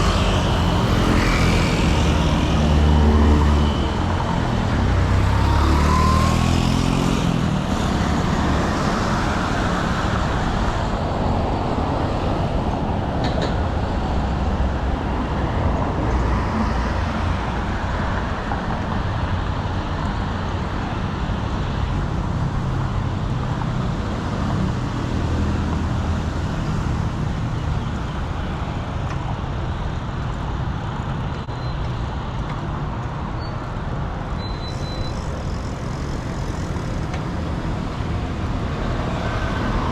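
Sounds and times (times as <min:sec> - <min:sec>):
car and motorbike engines passing: 0:00.0 - 0:18.0, 0:33.9 - 0:39.9
tyre and road noise: 0:00.0 - 0:39.9.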